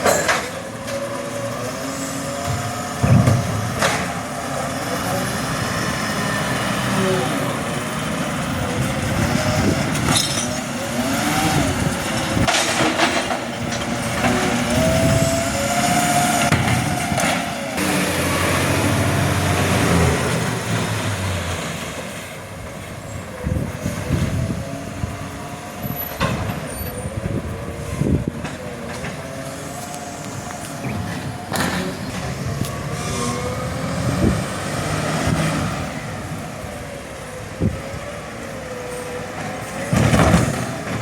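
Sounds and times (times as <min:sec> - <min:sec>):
garbage truck engine whining: 0:00.0 - 0:41.0
sharp knocks and clanks: 0:02.4 - 0:04.2.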